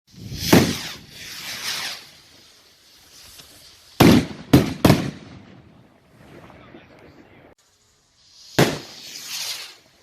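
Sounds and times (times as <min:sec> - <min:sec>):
fireworks hissing whooshes: 0:00.1 - 0:10.0
fireworks bang: 0:00.2 - 0:02.0, 0:04.0 - 0:07.0, 0:08.5 - 0:09.8.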